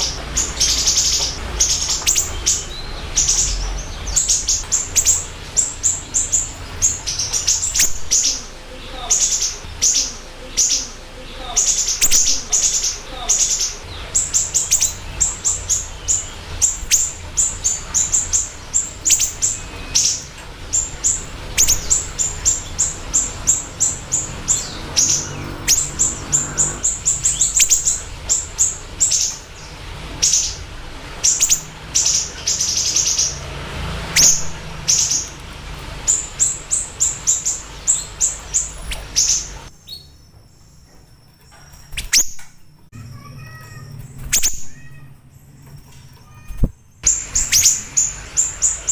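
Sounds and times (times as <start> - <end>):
songbird chirping: 0.0 - 48.9.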